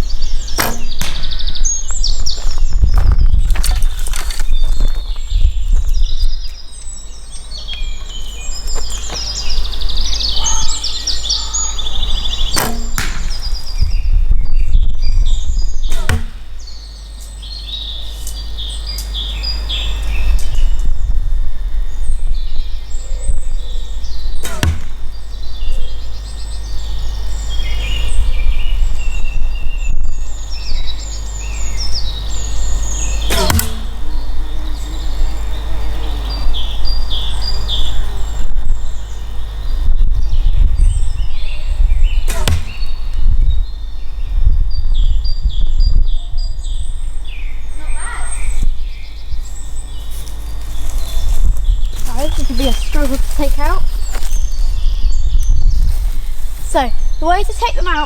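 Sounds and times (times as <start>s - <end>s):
birds chirping: 0.0s - 58.0s
arrows hitting target: 0.5s - 1.9s, 12.4s - 13.8s, 15.8s - 16.7s, 24.4s - 25.2s, 33.2s - 34.2s, 42.2s - 43.0s.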